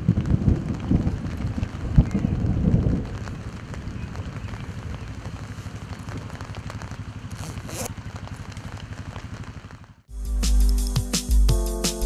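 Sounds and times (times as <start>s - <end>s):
wind buffeting microphone: 0.0s - 7.7s
rain pattering on umbrella: 0.0s - 10.1s.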